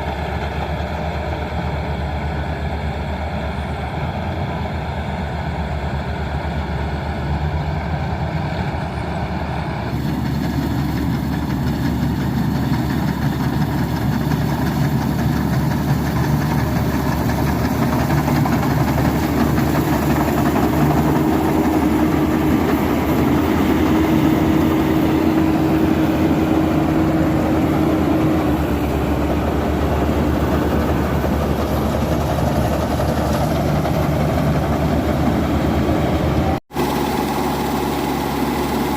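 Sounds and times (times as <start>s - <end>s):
steady whine: 0.0s - 38.9s
tractor engine running: 0.0s - 38.9s.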